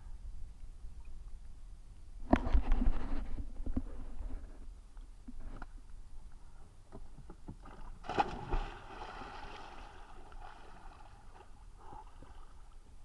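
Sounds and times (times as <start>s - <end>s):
large splash: 8.0s - 11.1s
water splashing around swimmer: 8.0s - 12.6s.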